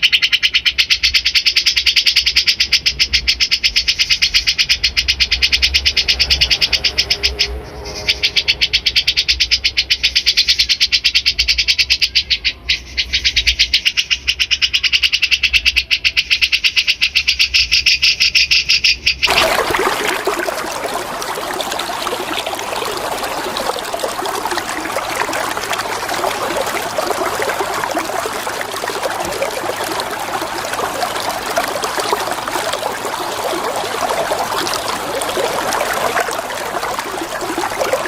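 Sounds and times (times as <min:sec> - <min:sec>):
running water: 0:19.2 - 0:38.0.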